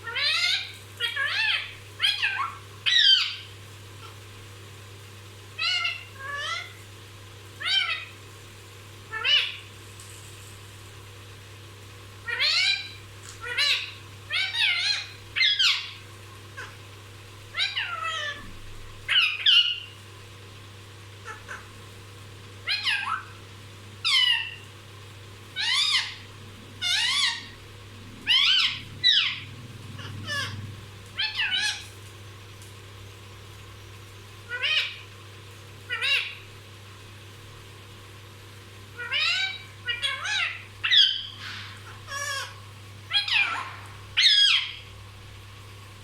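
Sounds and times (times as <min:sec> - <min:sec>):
parrot giving high calls: 0:00.0 - 0:04.1, 0:05.6 - 0:06.8, 0:07.6 - 0:08.1, 0:09.1 - 0:09.6, 0:12.2 - 0:16.0, 0:17.5 - 0:18.4, 0:19.1 - 0:19.9, 0:21.2 - 0:21.7, 0:22.6 - 0:23.4, 0:24.0 - 0:24.6, 0:25.6 - 0:27.6, 0:28.2 - 0:31.9, 0:34.5 - 0:35.0, 0:35.9 - 0:36.5, 0:39.0 - 0:44.9.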